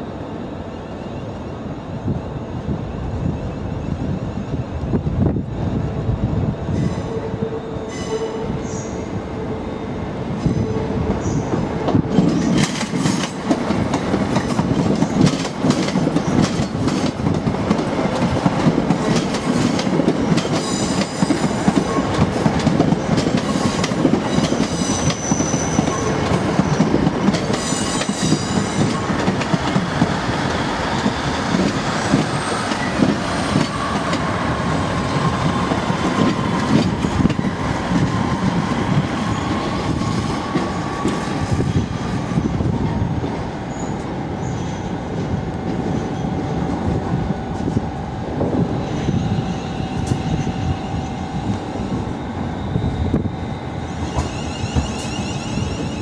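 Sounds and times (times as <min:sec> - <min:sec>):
train low rumble: 0:00.0 - 0:56.0
high wheel squeals: 0:52.6 - 0:56.0.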